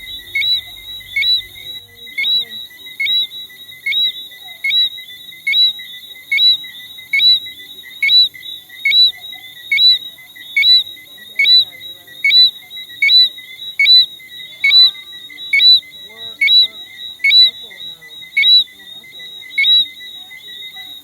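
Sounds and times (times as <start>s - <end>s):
frog rising whistle call: 0.0s - 3.2s.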